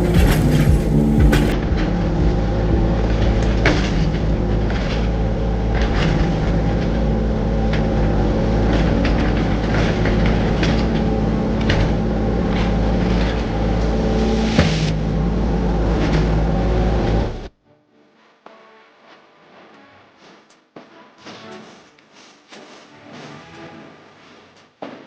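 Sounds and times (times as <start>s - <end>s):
excavator diesel engine running: 0.0s - 17.5s.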